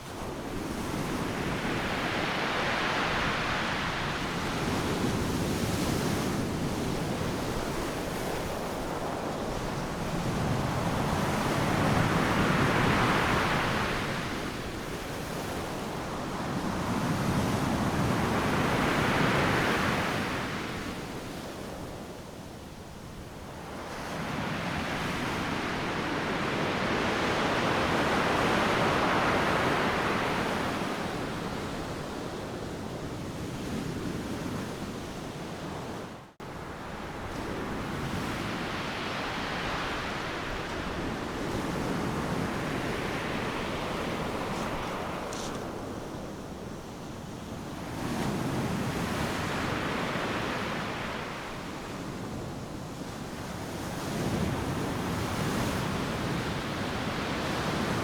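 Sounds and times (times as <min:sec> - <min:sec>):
ocean surf breaking: 0:36.7 - 0:47.0.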